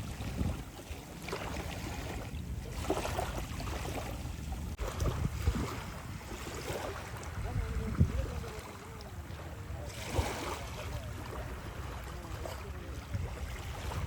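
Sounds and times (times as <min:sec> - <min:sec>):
sea waves at shore: 0:00.0 - 0:14.0
wind buffeting microphone: 0:00.0 - 0:14.0.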